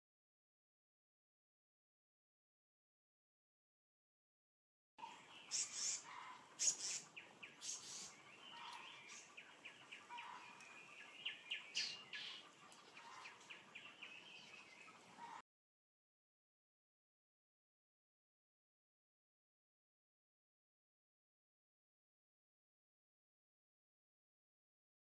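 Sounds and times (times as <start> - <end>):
wild birds chirping: 5.0 - 15.4.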